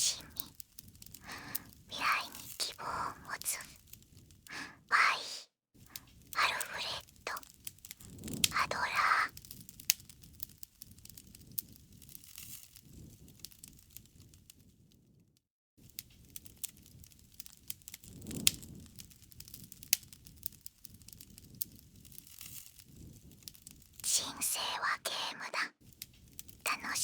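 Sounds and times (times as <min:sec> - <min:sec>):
flames rustling: 0:00.0 - 0:04.9, 0:05.8 - 0:15.2, 0:15.8 - 0:24.6, 0:25.8 - 0:27.0
wood snapping in fire: 0:00.2 - 0:02.6, 0:07.0 - 0:08.6, 0:09.3 - 0:14.7, 0:15.8 - 0:24.0, 0:25.8 - 0:26.6.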